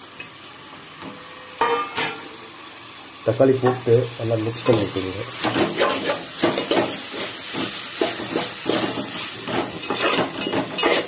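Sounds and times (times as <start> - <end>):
vegetables sizzling in hot oil: 0.0 - 11.0
spatula scraping pot bottom: 8.0 - 11.0.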